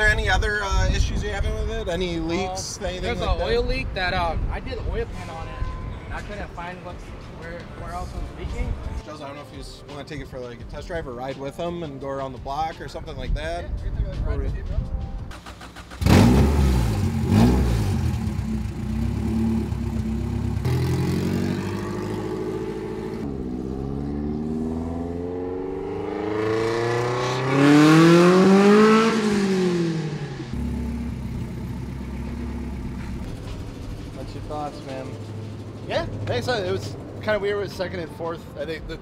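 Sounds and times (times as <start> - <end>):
loud car engine revving: 16.0 - 32.8.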